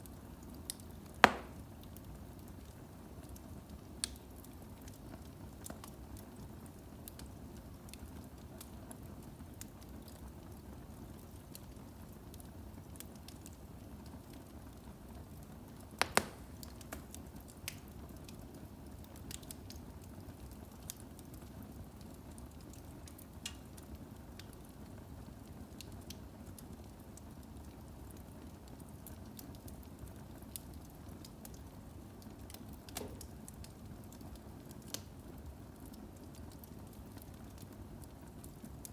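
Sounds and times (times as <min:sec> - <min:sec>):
logs crackling and popping: 0:00.4 - 0:02.0, 0:04.0 - 0:06.2, 0:15.7 - 0:18.3, 0:32.4 - 0:38.9.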